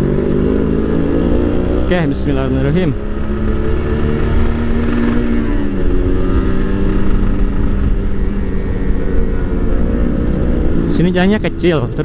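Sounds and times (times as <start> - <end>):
motorcycle engine running: 0.0 - 12.0
wind rumble on microphone: 3.2 - 11.5.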